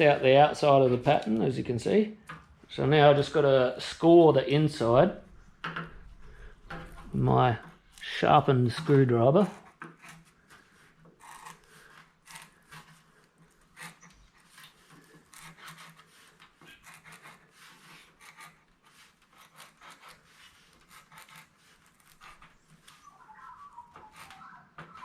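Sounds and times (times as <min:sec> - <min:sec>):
screwdriver scratching sheet metal: 0:08.8 - 0:23.1, 0:23.8 - 0:25.0.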